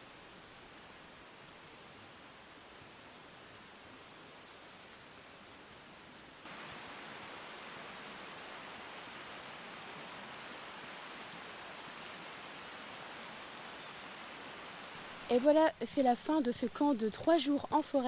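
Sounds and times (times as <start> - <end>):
steady rushing outdoor noise: 6.4 - 15.5.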